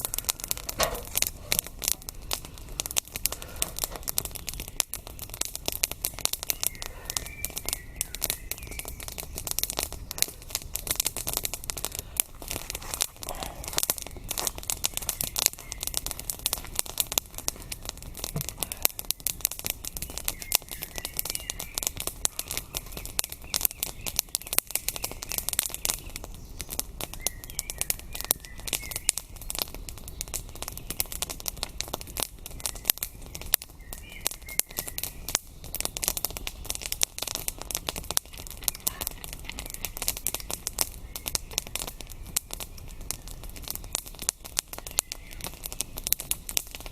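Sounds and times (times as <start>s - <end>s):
campfire crackling and popping: 0.0s - 46.9s
bird chirping: 6.3s - 10.3s, 13.3s - 16.1s, 19.9s - 31.0s.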